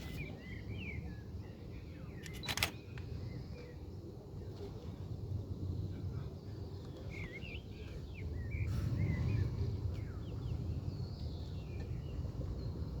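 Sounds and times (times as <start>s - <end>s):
continuous low rumble: 0.0s - 13.0s
small birds chirping: 6.6s - 13.0s.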